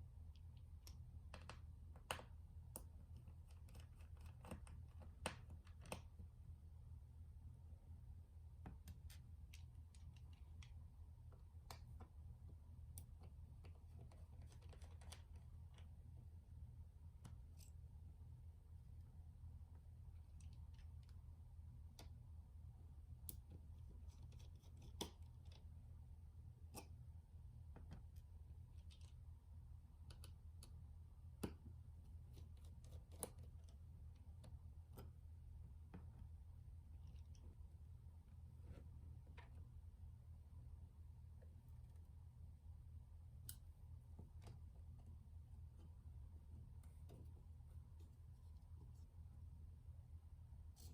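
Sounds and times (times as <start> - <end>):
low steady hum: 0.0 - 50.9
small clicks and taps: 0.2 - 6.4, 8.5 - 16.1, 20.0 - 22.4, 23.1 - 25.8, 26.6 - 29.3, 29.9 - 37.6.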